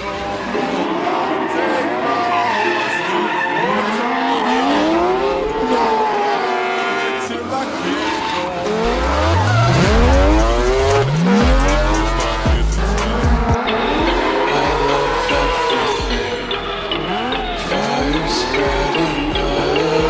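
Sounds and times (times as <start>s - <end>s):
tyre squeal: 0.2s - 6.2s, 7.8s - 11.0s
motor revving: 8.7s - 19.8s
deep bass: 8.9s - 20.0s.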